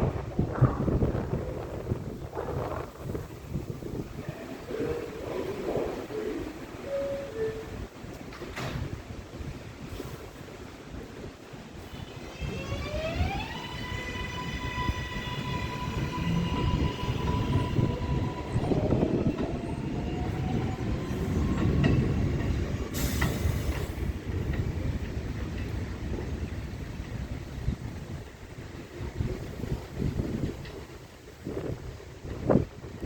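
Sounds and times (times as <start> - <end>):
wheels rumbling on rails: 0.0 - 33.0
train traction motors whining: 11.9 - 23.9.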